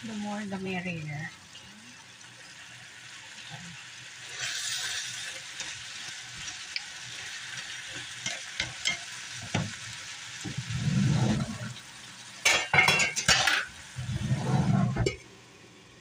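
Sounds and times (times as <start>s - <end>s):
food sizzling in a skillet: 0.0s - 16.0s.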